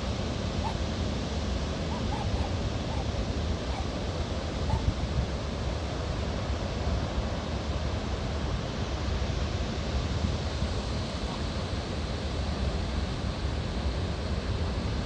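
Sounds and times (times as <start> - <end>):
wind and surf rushing: 0.0 - 13.0
wind buffeting microphone: 1.7 - 6.0.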